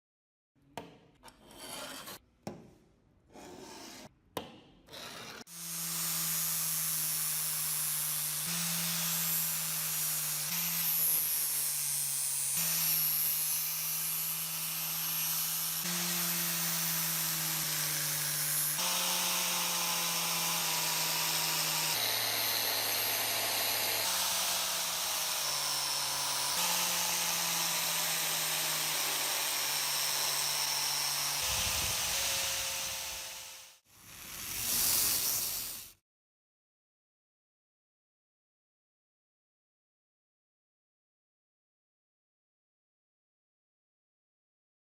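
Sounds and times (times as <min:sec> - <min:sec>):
power tool motor humming: 0:05.4 - 0:35.9.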